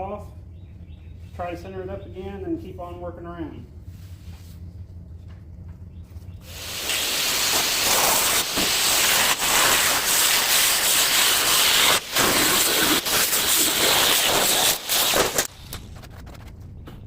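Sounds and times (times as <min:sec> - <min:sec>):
low hum: 0:00.0 - 0:10.2, 0:10.8 - 0:17.0
steel plate cutting rush: 0:06.5 - 0:16.0.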